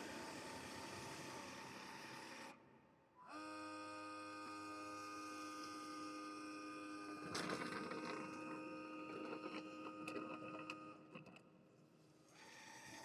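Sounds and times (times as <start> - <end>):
steady whir: 0.0 - 2.7.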